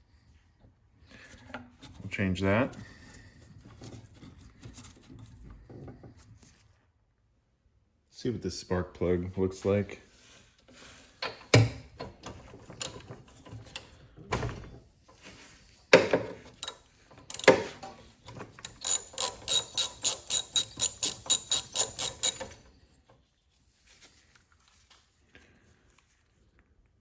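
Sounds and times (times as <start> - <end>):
tool clunks: 15.9 - 18.5
ratchet wrench clicking: 16.6 - 17.7, 18.6 - 22.6.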